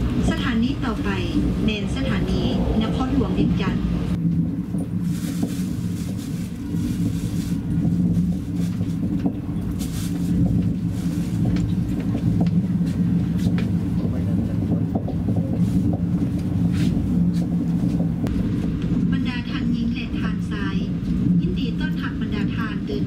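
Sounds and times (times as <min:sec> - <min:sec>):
train rumble: 0:00.0 - 0:23.0.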